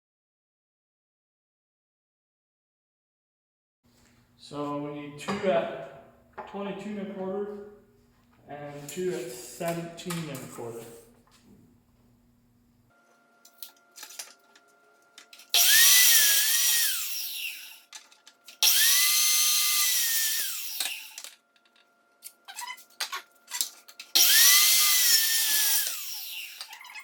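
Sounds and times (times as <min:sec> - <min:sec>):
power saw cutting wood: 0:15.3 - 0:21.4, 0:23.5 - 0:27.0.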